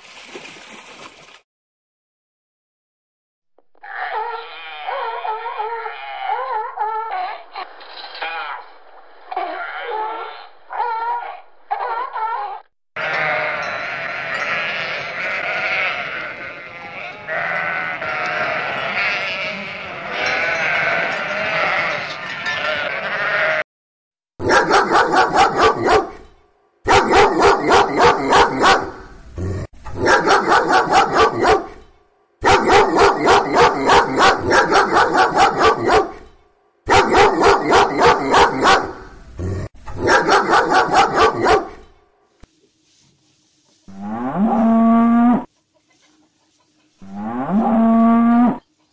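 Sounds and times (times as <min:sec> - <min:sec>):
seal pup bleating: 0:13.0 - 0:21.0
dog barking rapidly: 0:24.4 - 0:26.2, 0:26.9 - 0:29.0, 0:30.0 - 0:31.8, 0:32.4 - 0:36.2, 0:36.9 - 0:39.1, 0:40.0 - 0:41.8.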